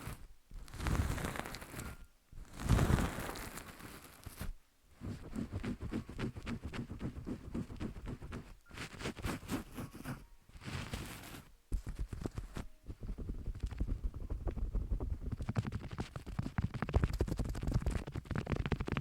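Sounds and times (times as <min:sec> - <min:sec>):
wet squishing crackles on microphone: 0:00.0 - 0:04.5.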